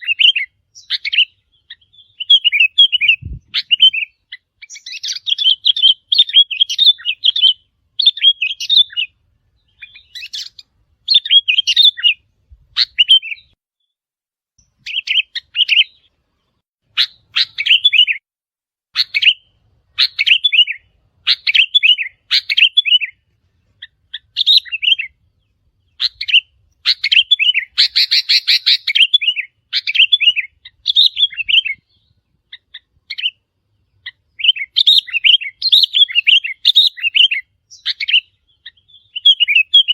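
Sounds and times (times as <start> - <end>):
bird chirping: 0.0 - 14.0, 14.6 - 18.2, 18.9 - 39.9.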